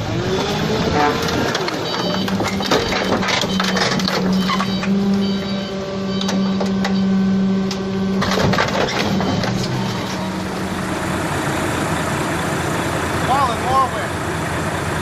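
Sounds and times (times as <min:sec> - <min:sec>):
compactor mechanical whine: 0:00.0 - 0:11.0
rough noisy mechanical sound: 0:00.0 - 0:15.0.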